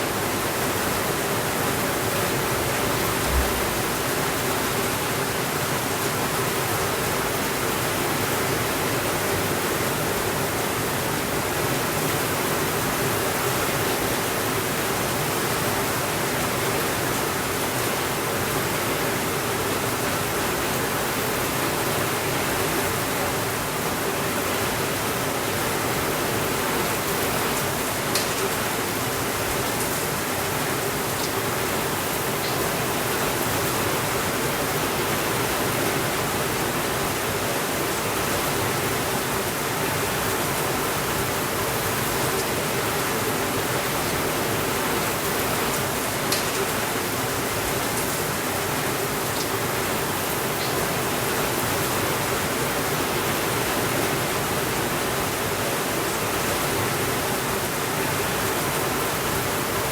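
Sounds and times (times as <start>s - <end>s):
steady rainfall: 0.0s - 59.9s
soft low thump: 3.2s - 4.0s.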